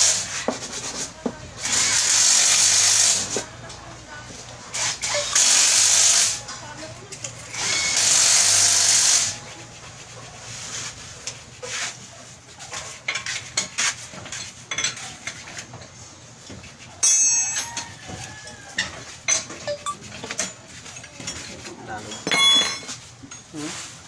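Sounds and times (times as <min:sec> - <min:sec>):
metal tools clinking: 0:17.0 - 0:17.9, 0:18.8 - 0:23.5.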